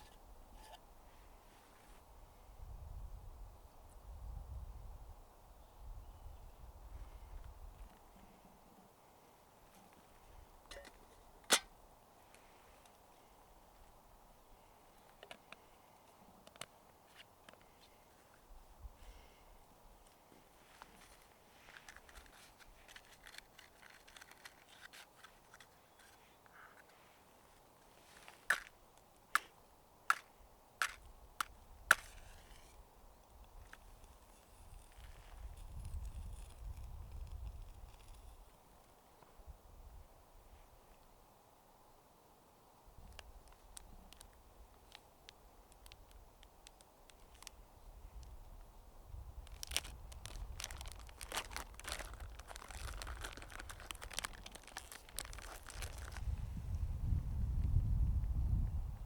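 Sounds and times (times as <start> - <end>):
crinkling and crunching: 20.6 - 29.5, 30.1 - 32.8, 43.1 - 47.6, 49.3 - 56.5.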